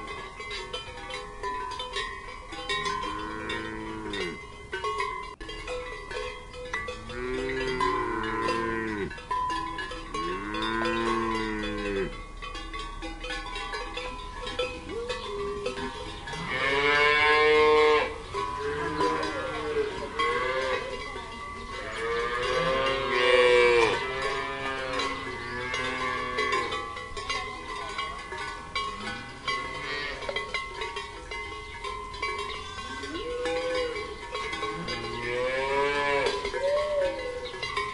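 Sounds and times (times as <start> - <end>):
cowbells ringing: 0.0 - 37.9
cattle mooing: 2.8 - 4.4, 7.0 - 9.2, 10.1 - 12.2, 16.3 - 21.0, 21.8 - 26.7, 34.7 - 37.4.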